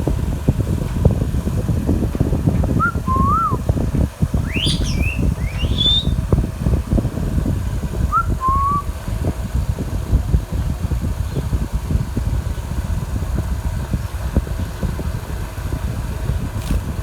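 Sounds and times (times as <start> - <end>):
parrot whistling: 2.8 - 3.6, 4.4 - 6.2, 8.1 - 8.8.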